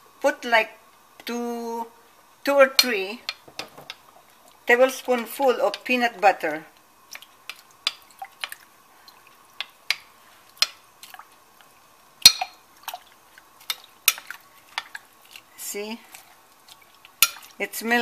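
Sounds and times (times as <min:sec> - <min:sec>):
spoon tapping cooking pot: 0:02.8 - 0:04.1, 0:07.4 - 0:08.6, 0:12.2 - 0:12.6.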